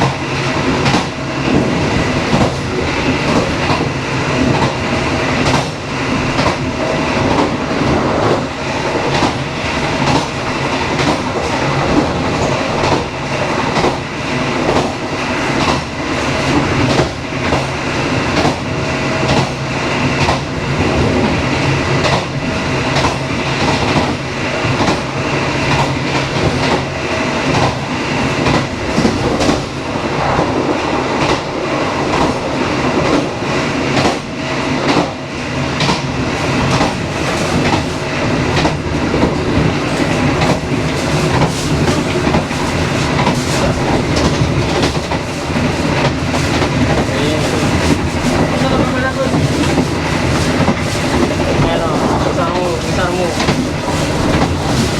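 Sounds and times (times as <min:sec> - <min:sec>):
train wheels rumbling on rails: 0:00.0 - 0:54.9
wheels clacking over rail joints: 0:31.2 - 0:54.9.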